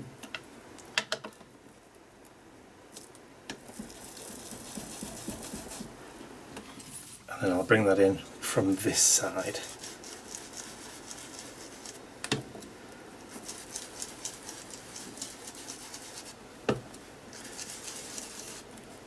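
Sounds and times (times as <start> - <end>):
foam tool dabbing on paper: 3.7 - 6.0, 9.6 - 12.1, 13.3 - 16.4, 17.3 - 18.7.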